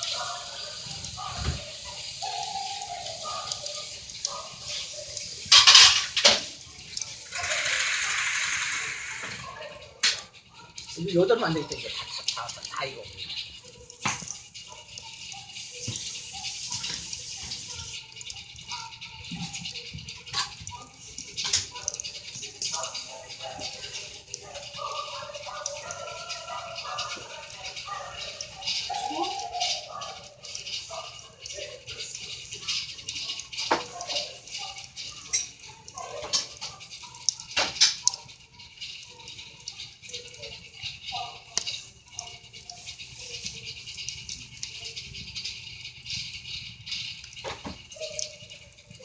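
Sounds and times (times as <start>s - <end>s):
wood fire crackling: 0.0s - 49.0s.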